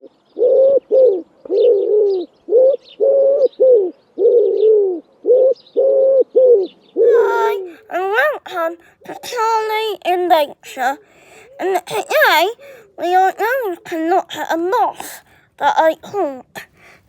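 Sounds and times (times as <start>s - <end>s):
small birds chirping: 0.0s - 17.0s
pigeon cooing: 0.4s - 10.1s
child's voice: 7.0s - 16.8s.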